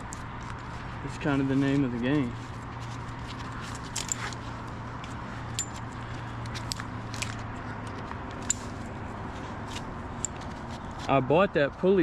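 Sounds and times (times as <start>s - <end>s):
metal hardware clinking: 3.3s - 8.9s.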